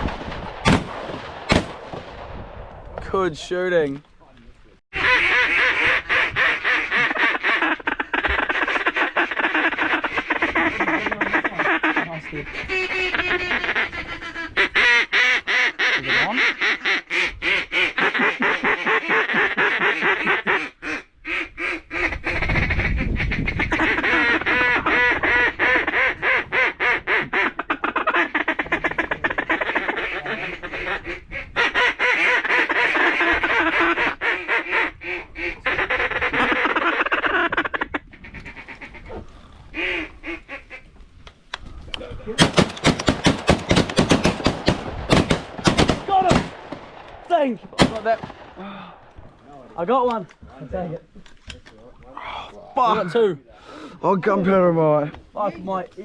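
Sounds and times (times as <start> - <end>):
duck call quacking: 4.9 - 40.9.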